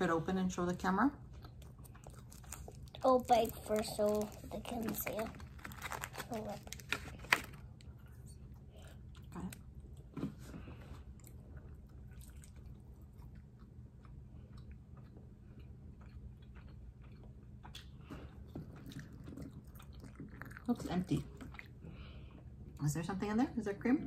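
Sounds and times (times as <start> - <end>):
soft chewing: 1.2 - 22.9
paper crackle: 2.3 - 7.7.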